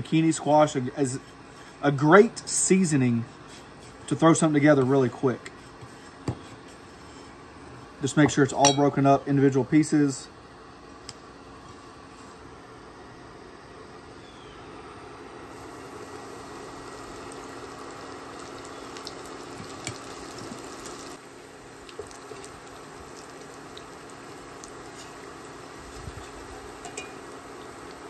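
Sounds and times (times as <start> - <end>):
steady low hum: 0.0 - 28.0
okra sizzling in hot oil: 15.5 - 28.0.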